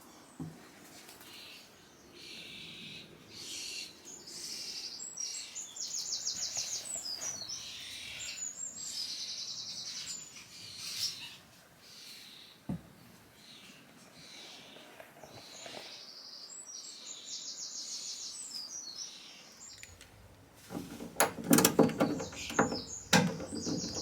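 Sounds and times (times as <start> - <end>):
birds chirping: 13.4 - 24.0.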